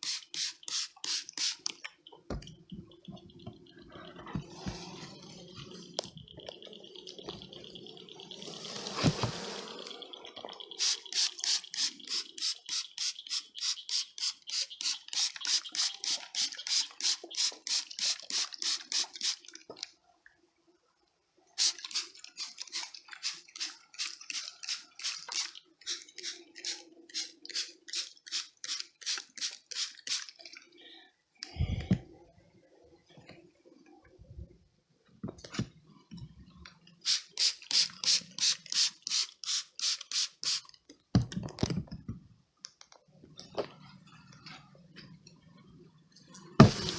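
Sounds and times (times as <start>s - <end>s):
spray bottle squirting: 0.0s - 1.8s, 10.7s - 19.4s, 21.6s - 30.4s, 37.0s - 40.8s, 46.6s - 46.9s.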